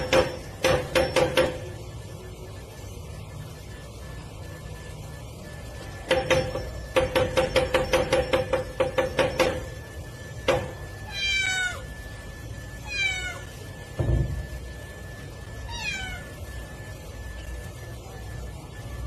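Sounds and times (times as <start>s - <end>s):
cat meowing: 11.1s - 11.9s, 12.8s - 13.5s, 15.7s - 16.4s
thump: 14.0s - 14.4s.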